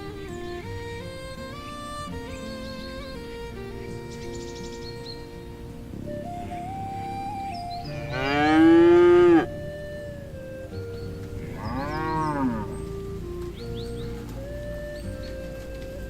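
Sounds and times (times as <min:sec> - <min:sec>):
background music: 0:00.0 - 0:16.0
cow mooing: 0:07.9 - 0:09.6, 0:11.4 - 0:12.8.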